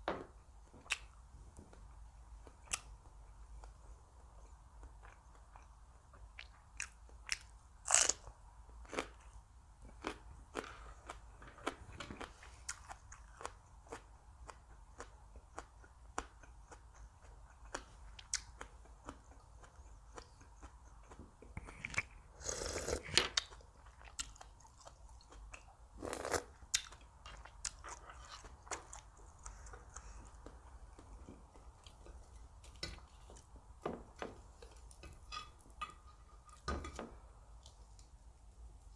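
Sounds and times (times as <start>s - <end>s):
person chewing crunchy food: 9.9s - 33.5s.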